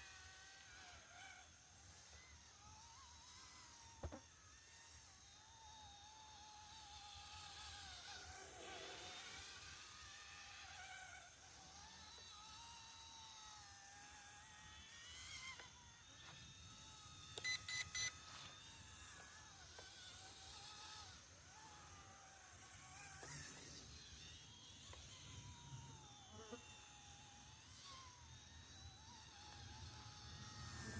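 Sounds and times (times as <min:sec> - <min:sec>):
electric model motor whining: 0:00.0 - 0:30.9
short loud beeps: 0:17.4 - 0:18.1.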